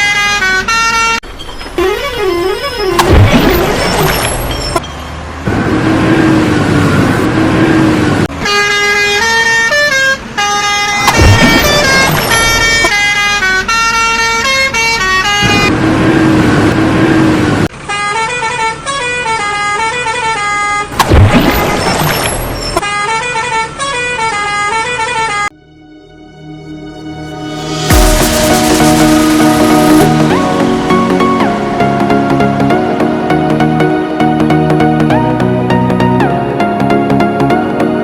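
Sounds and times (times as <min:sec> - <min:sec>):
engine and traffic noise: 0:00.0 - 0:38.0
loud hits: 0:11.1 - 0:12.6, 0:27.0 - 0:34.1
cartoon horn blasts: 0:26.3 - 0:33.8.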